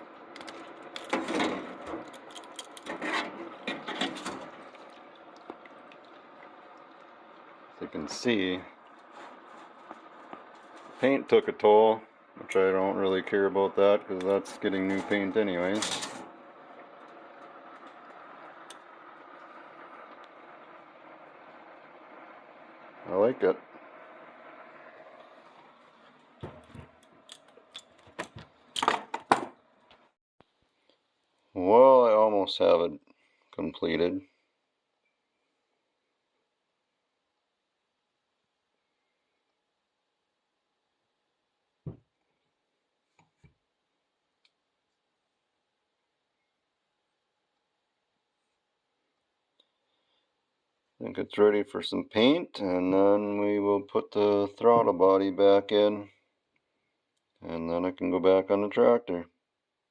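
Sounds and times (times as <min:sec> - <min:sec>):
faint steady hum: 0:00.0 - 0:29.0
rough scraping and rubbing: 0:02.8 - 0:04.6, 0:09.0 - 0:11.2.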